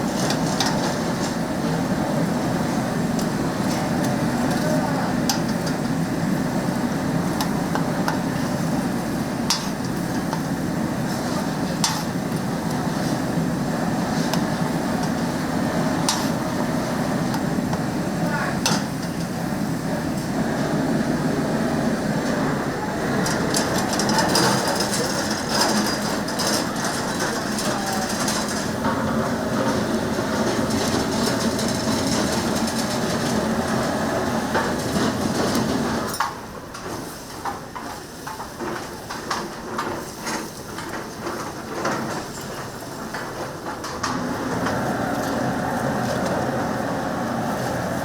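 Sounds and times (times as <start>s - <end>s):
steady kitchen rushing: 0.0s - 48.0s
metal utensils and pans clattering: 23.2s - 28.8s.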